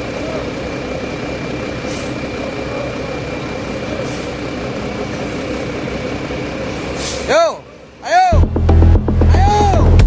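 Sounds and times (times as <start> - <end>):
diesel bus engine running: 0.0 - 10.0
short air hisses: 1.9 - 2.2, 6.7 - 7.3.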